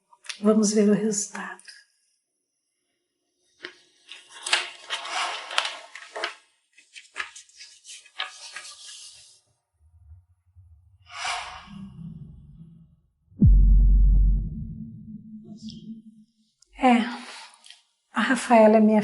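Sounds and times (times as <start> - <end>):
paper rustling and crinkling: 3.6 - 9.4
low drone: 9.8 - 16.4.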